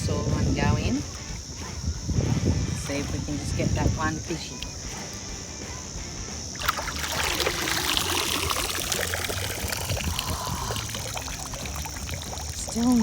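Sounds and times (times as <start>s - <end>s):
water pouring out of a trap: 6.6s - 13.0s.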